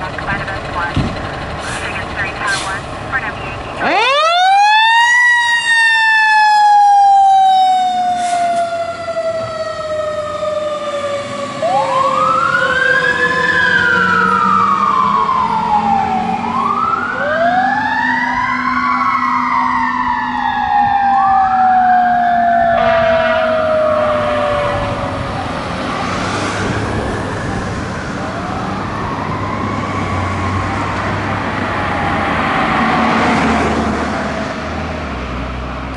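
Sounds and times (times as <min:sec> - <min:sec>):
mechanical siren winding down: 0:03.8 - 0:25.2
electronic siren wailing: 0:03.8 - 0:31.2.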